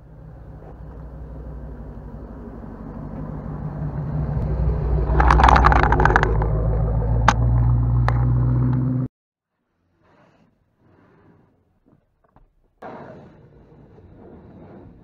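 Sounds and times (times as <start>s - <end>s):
car engine rumbling: 0.0s - 9.1s.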